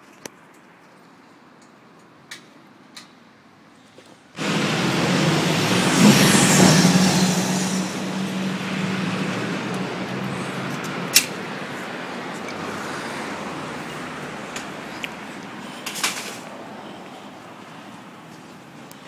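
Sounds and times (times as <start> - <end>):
vehicle passing by: 4.4 - 18.3.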